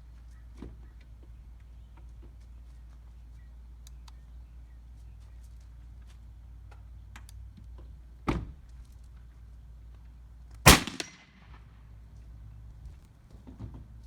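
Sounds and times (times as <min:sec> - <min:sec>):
air rifle firing crack: 0:10.7 - 0:11.6.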